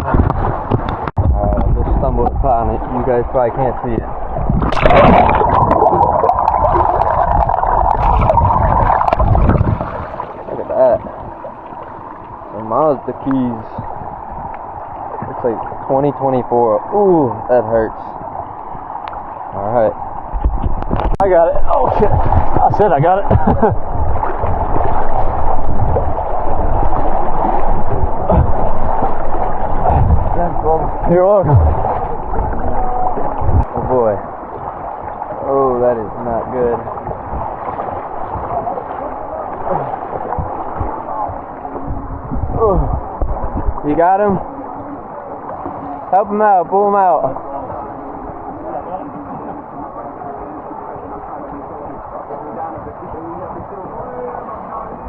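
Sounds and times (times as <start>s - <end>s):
clicks and knocks underwater: 0.0s - 2.7s, 3.9s - 12.3s, 20.3s - 21.2s, 21.9s - 30.4s, 31.4s - 33.9s, 36.8s - 42.5s
underwater river rushing: 0.0s - 55.0s.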